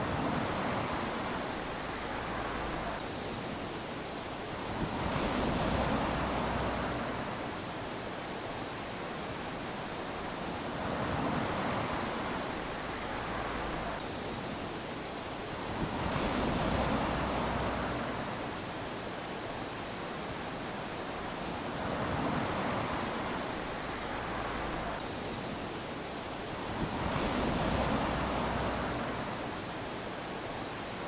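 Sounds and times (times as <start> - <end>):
waves lapping on sandy beach: 0.0 - 31.0.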